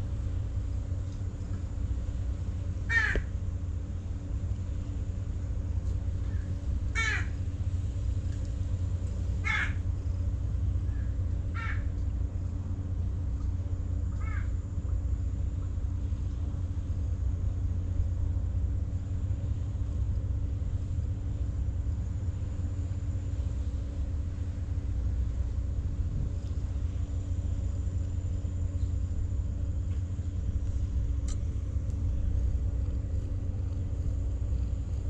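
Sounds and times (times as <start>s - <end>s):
steady low rumble: 0.0s - 35.0s
bird harsh caws: 2.9s - 3.3s, 6.2s - 7.4s, 9.4s - 9.9s, 10.9s - 11.9s, 14.1s - 14.6s.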